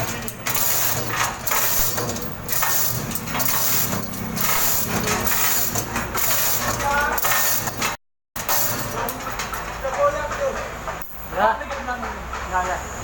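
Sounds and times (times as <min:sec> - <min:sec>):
engine running: 0:00.0 - 0:09.7
knocking and metal clatter: 0:00.0 - 0:12.6.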